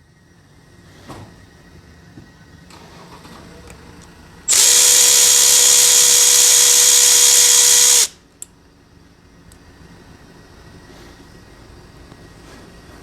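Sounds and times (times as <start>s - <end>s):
power tool whining: 4.5s - 8.2s.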